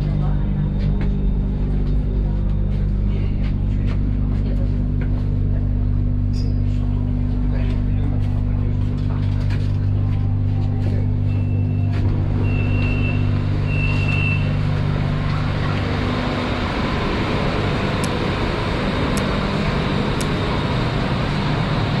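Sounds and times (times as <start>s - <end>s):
electric train running: 7.8s - 22.0s.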